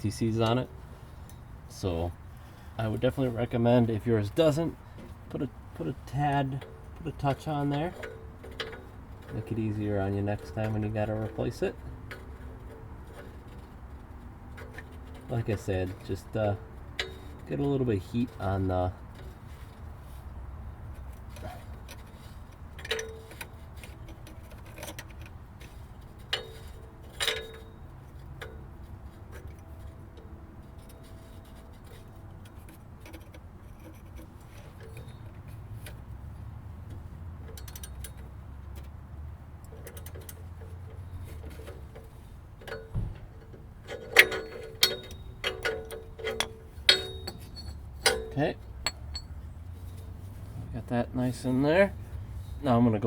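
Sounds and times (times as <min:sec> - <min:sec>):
low steady hum: 0:00.0 - 0:53.0
metallic ticks and clicks: 0:29.3 - 0:50.1
metal clinks: 0:37.4 - 0:38.9, 0:39.7 - 0:50.1.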